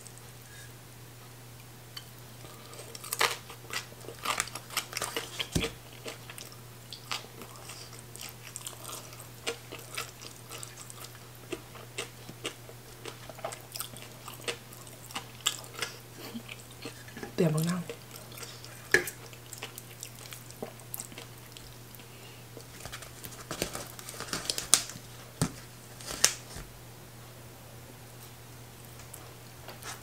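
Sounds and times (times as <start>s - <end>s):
person chewing crunchy food: 2.3s - 25.1s.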